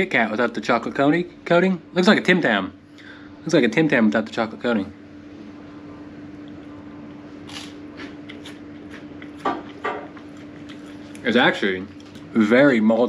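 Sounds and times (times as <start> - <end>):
low room hum: 0.0 - 13.0
wafer biscuit crunching: 7.4 - 11.3.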